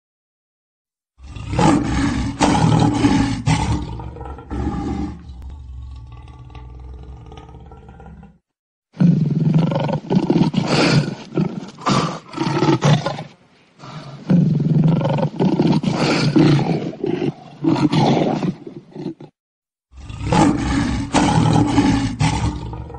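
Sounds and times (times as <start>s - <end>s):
big cats roaring in a fight: 1.2s - 8.4s, 19.9s - 22.9s.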